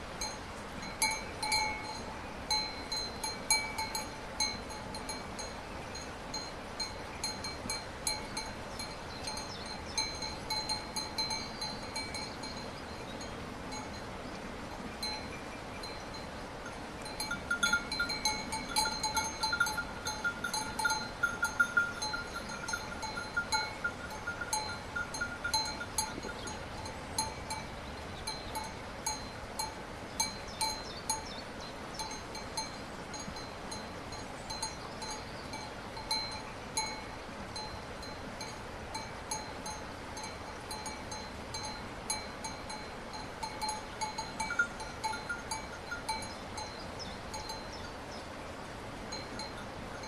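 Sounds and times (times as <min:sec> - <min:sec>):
steady background hiss: 0:00.0 - 0:50.0
metal bells clanking: 0:17.1 - 0:27.6, 0:39.0 - 0:46.7.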